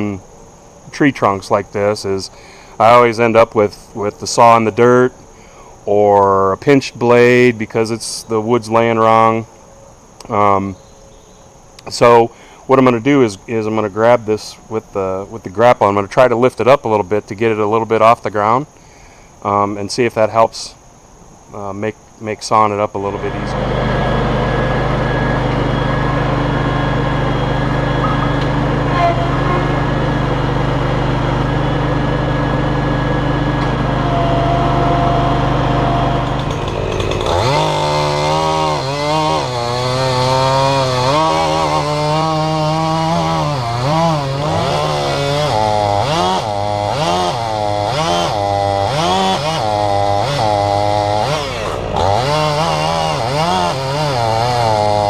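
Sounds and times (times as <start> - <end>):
engine running steadily: 23.0 - 39.1, 50.7 - 54.2
chainsaw cutting wood: 23.0 - 55.0.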